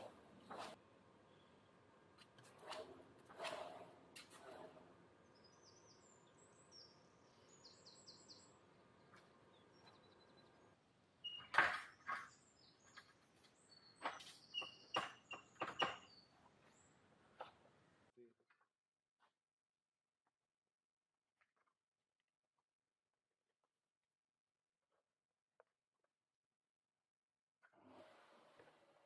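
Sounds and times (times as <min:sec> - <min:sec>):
faint bird chirping: 0:01.2 - 0:01.9, 0:04.7 - 0:17.0.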